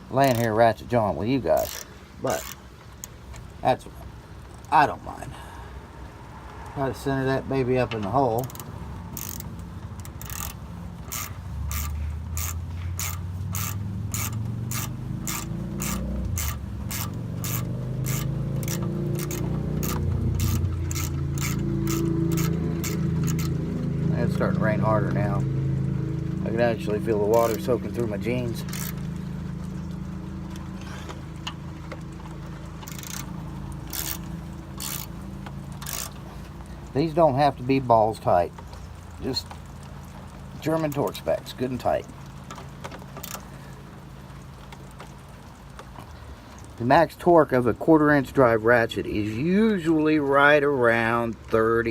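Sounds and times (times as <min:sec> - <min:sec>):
ratchet pawl clicking: 0:00.2 - 0:00.6, 0:01.5 - 0:03.5, 0:08.3 - 0:23.7, 0:26.5 - 0:29.1, 0:30.5 - 0:36.6, 0:42.4 - 0:43.5.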